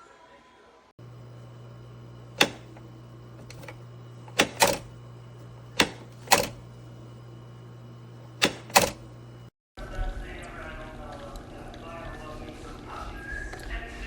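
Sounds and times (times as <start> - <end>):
steady low hum: 1.0 - 14.0.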